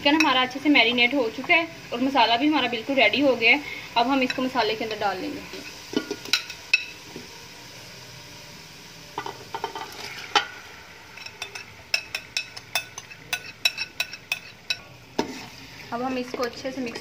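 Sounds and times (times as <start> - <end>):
oil sizzling: 0.0 - 17.0
metal spoon clinking on pot: 11.2 - 14.9.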